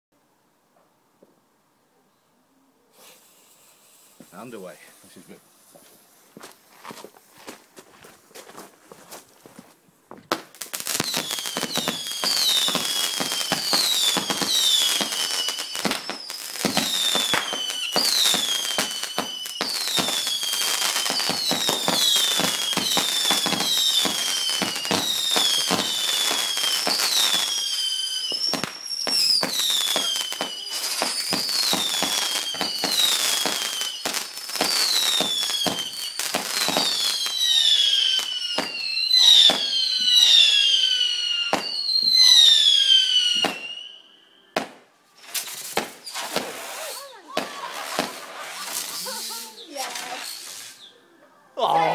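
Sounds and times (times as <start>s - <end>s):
fireworks crackling pops: 2.9s - 40.6s, 41.5s - 42.7s, 43.3s - 43.7s, 44.6s - 51.0s
fireworks whistles falling in pitch: 10.3s - 51.0s.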